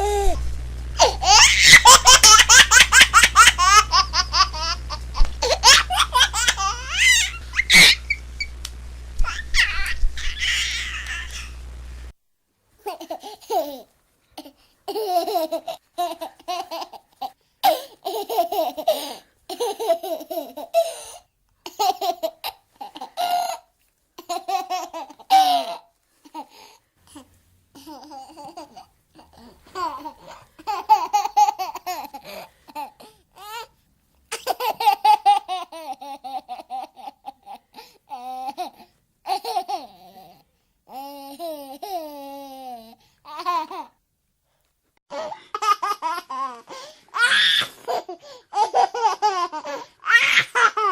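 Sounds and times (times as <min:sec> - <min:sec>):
baby babbling: 0:00.0 - 0:08.2, 0:09.2 - 0:11.6
baby laughing: 0:00.0 - 0:08.5, 0:09.2 - 0:11.6, 0:12.8 - 0:21.0, 0:21.6 - 0:26.6, 0:27.8 - 0:33.7, 0:34.3 - 0:44.0, 0:45.1 - 0:50.9.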